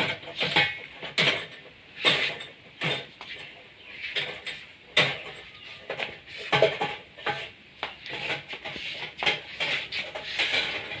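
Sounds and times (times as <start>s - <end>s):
metal kitchenware clattering and scraping: 0.0s - 11.0s.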